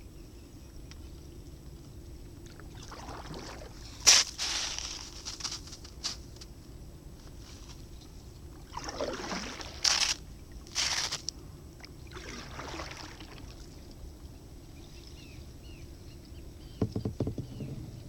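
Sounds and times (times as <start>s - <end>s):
kayak paddle splashing: 2.5s - 5.4s, 8.6s - 11.2s, 11.8s - 13.8s.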